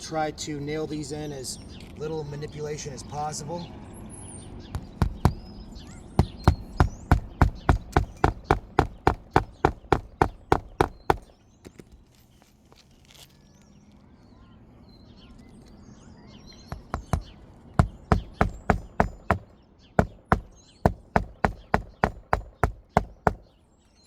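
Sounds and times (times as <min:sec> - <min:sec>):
hammer driving roofing nails: 0:04.8 - 0:05.5, 0:06.2 - 0:11.8, 0:16.7 - 0:23.6.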